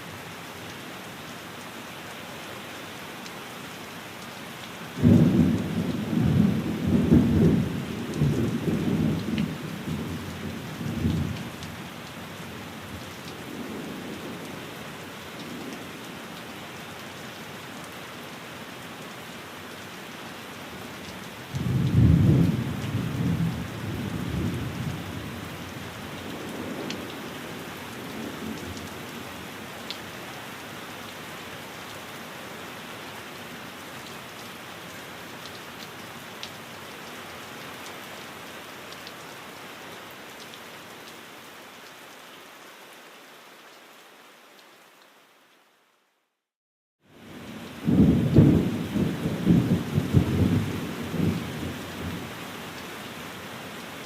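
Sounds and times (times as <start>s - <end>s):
rain on a window: 0.0s - 46.4s, 47.1s - 54.0s
thunder rumbling: 47.8s - 52.2s.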